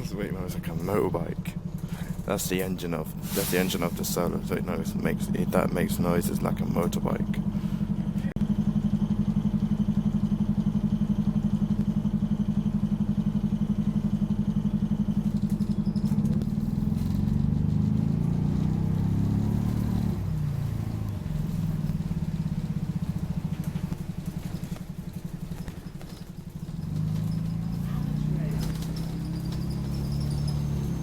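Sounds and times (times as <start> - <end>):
bus diesel engine throbbing: 0.0 - 31.0.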